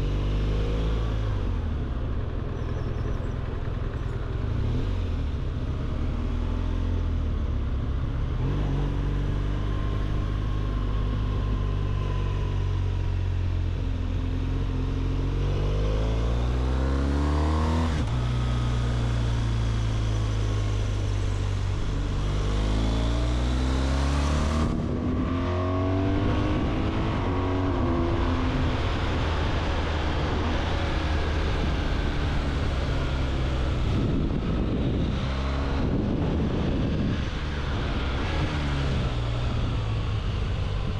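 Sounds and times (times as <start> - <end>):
motorcycle engine accelerating: 0.0 - 40.9
wind rushing over microphone: 8.4 - 14.8, 17.4 - 40.9.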